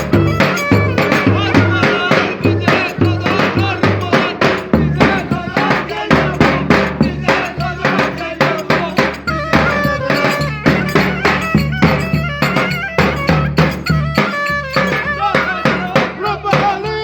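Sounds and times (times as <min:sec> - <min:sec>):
ornamented melody line: 0:00.0 - 0:16.4
driving drum beat: 0:00.0 - 0:17.0.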